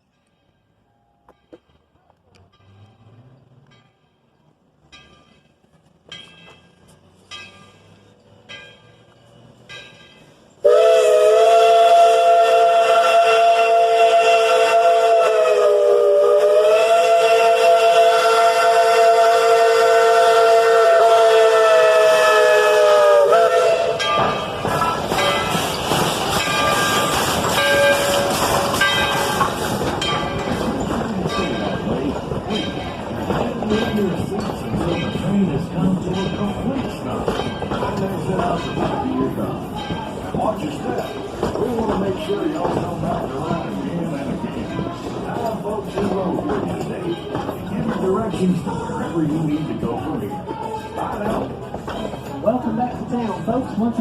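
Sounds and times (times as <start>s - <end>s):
steam locomotive bell ringing: 0.0s - 54.0s
train rolling on rails: 0.0s - 54.0s
chime steam whistle: 10.6s - 24.4s, 26.3s - 29.6s.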